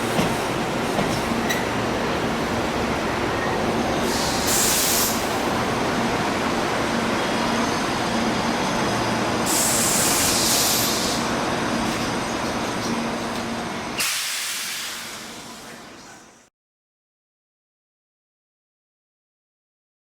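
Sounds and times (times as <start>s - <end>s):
electric train rumbling: 0.0s - 16.5s
air brake hiss: 4.0s - 5.3s, 9.4s - 11.3s, 14.0s - 15.8s.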